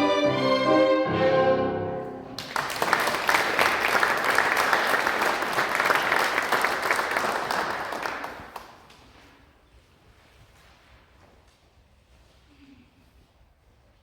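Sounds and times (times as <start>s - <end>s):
violin and piano chord: 0.0s - 2.4s
audience applause: 2.3s - 8.8s.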